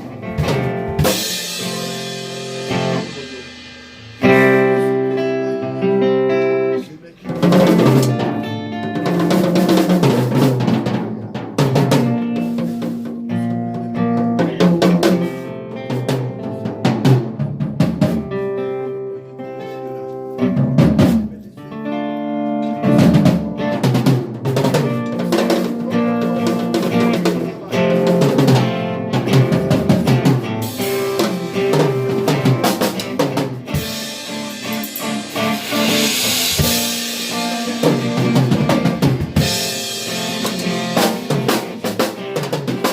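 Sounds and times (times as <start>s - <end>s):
live band music: 0.0s - 42.9s
cymbals crashing: 1.0s - 5.4s, 30.6s - 41.9s.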